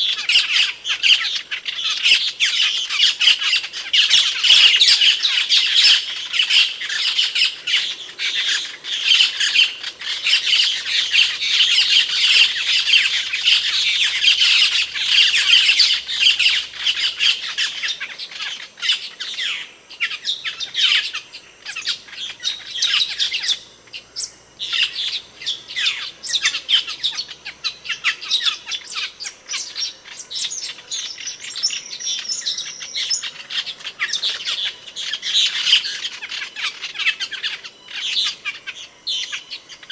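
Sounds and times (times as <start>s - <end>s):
starlings calling: 0.0s - 39.9s.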